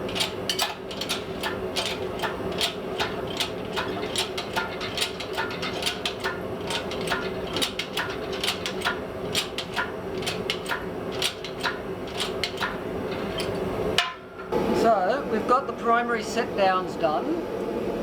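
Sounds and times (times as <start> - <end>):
steady hum: 0.0 - 18.0
hammer striking steel on anvil: 13.4 - 14.6.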